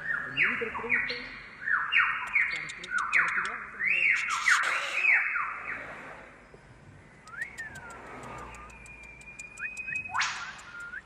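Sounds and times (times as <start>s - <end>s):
birds whistling: 0.0s - 11.0s
faint high ticking: 7.2s - 11.0s.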